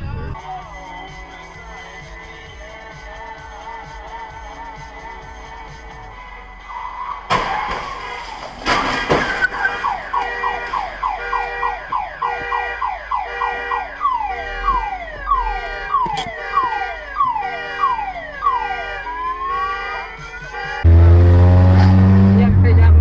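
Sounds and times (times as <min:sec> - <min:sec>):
electronic siren sweeping: 0:09.8 - 0:23.0.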